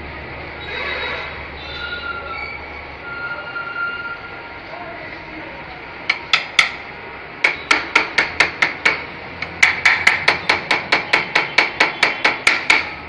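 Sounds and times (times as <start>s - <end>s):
tool knocking with metallic ring: 6.1s - 13.0s.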